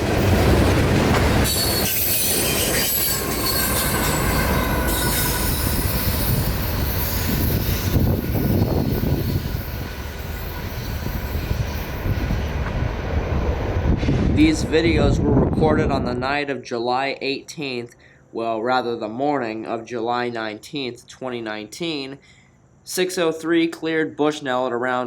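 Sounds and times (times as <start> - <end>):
freight train rolling past: 0.0 - 16.2
thin wheel squeal: 1.5 - 11.4.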